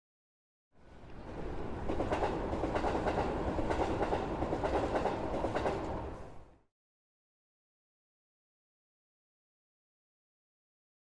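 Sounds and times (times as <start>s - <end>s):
electric train rumbling on rails: 0.8s - 6.7s.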